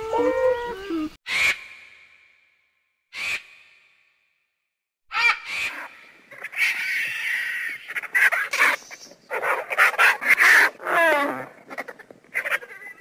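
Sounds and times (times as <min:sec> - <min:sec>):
bird calling: 0:00.0 - 0:01.5.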